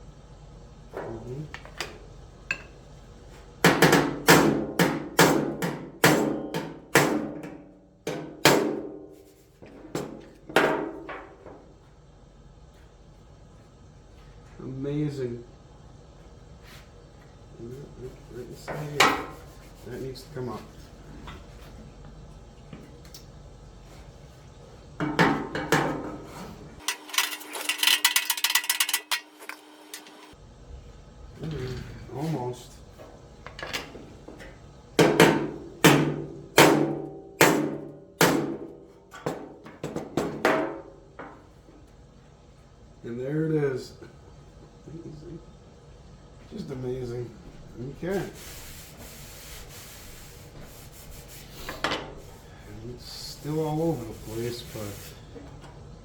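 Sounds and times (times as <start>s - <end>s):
hammer striking sheet metal: 3.7s - 9.0s, 35.0s - 38.7s.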